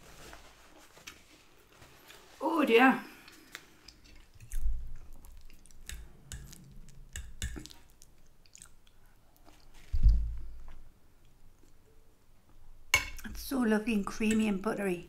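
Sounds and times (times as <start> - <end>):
chewing soft food: 3.3 - 11.8
wet mouth clicks and smacks: 5.2 - 9.0.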